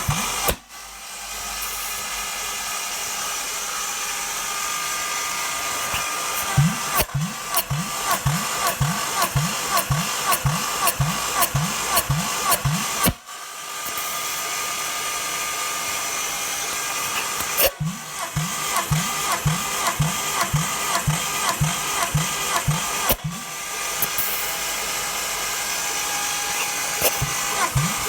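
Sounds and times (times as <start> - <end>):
engine cranked by starter motor: 0.0 - 0.7, 5.8 - 13.2, 16.9 - 24.6, 26.5 - 28.0.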